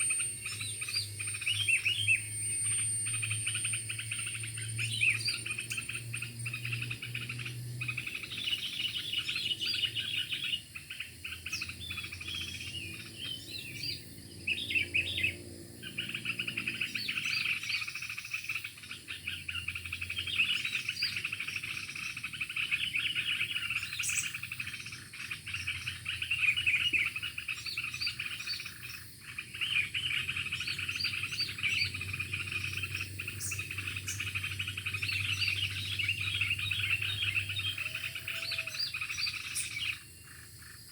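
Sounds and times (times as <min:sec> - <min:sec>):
songbird chirping: 0:00.0 - 0:40.9.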